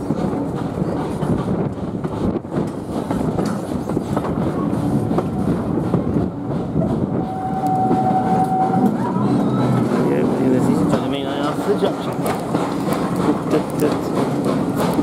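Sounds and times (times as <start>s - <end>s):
rumble of wheels on rail: 0.0s - 15.0s
clicks over rail joints: 9.8s - 15.0s.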